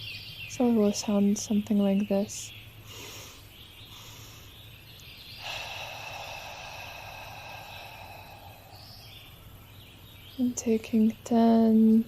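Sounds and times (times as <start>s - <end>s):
hoarse breath exhale: 5.4s - 9.4s.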